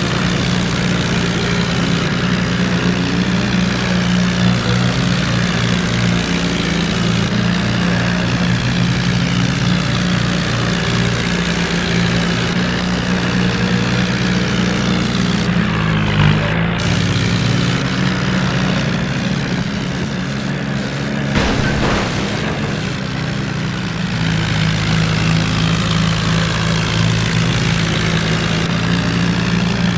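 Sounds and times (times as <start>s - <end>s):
tractor diesel engines under load: 0.0s - 29.9s.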